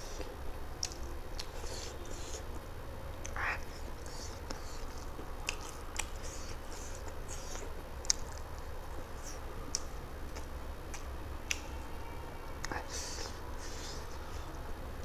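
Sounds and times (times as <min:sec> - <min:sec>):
chewing food: 0:00.0 - 0:02.6, 0:03.2 - 0:11.9
wet mouth clicks: 0:03.2 - 0:08.4, 0:09.7 - 0:11.7.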